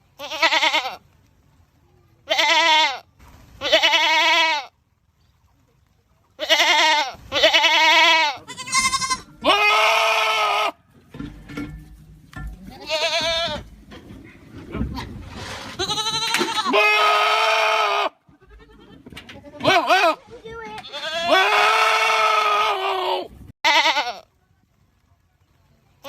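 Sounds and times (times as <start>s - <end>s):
goats screaming: 6.4s - 10.8s, 15.7s - 19.0s, 20.9s - 24.1s.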